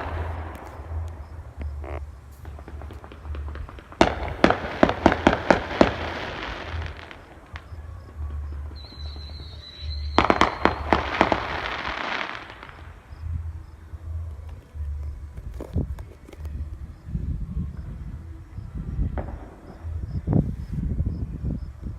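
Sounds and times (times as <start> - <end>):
fireworks whistle: 0.0 - 13.2
fireworks cracking: 0.0 - 13.3.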